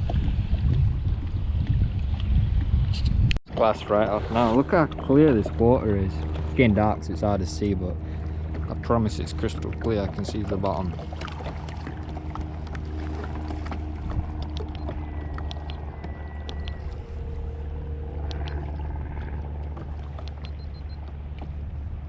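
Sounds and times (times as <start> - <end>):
electric motor humming: 3.9 - 22.0
clicks and knocks from kayak: 9.4 - 17.1, 18.3 - 21.7
faint held tones: 12.0 - 21.1.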